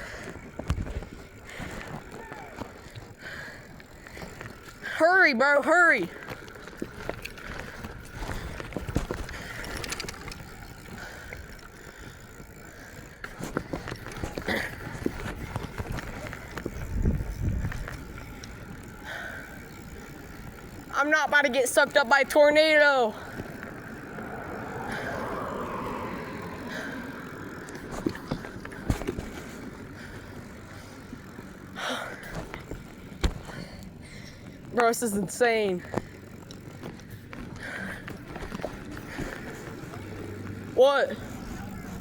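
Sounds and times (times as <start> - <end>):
ride noise: 0.0 - 42.0
wind buffeting microphone: 14.2 - 18.9, 23.3 - 30.6
wind rushing: 24.0 - 27.6.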